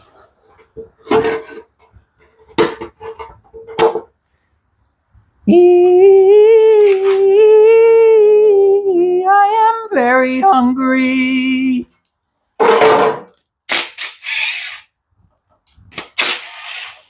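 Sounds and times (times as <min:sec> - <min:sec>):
person singing a high note: 0:05.4 - 0:11.9.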